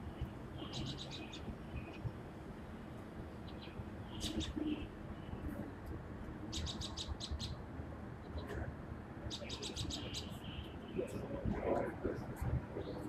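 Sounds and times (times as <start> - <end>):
small birds chirping: 0.0 - 2.2, 2.8 - 5.8, 6.4 - 7.6, 9.3 - 11.2.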